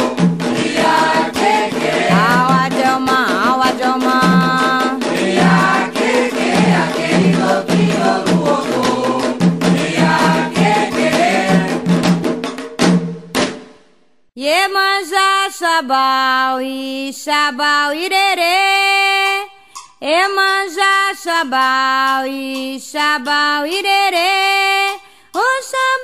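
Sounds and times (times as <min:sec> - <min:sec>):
voices singing a chant: 0:00.0 - 0:12.0
drums beating: 0:00.0 - 0:13.9.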